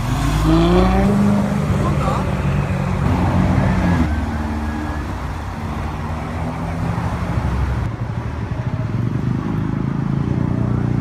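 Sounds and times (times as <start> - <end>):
car engine idling: 0.0 - 9.0
street traffic: 0.0 - 11.0.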